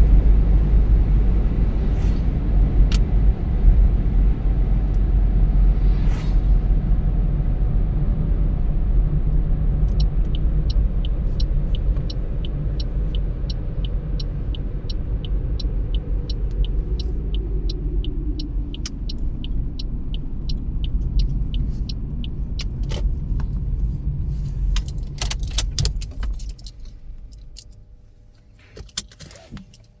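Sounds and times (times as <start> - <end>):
engine and road rumble: 0.0 - 30.0
turn signal ticking: 9.0 - 30.0.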